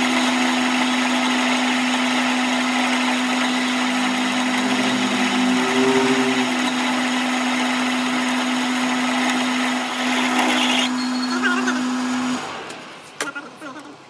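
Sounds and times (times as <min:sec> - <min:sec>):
higher tone: 0:03.1 - 0:07.4
electric motor humming: 0:03.8 - 0:06.8.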